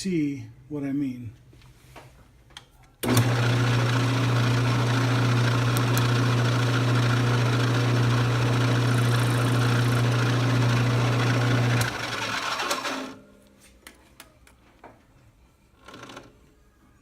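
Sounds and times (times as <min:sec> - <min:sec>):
lathe motor humming: 0:03.0 - 0:13.2.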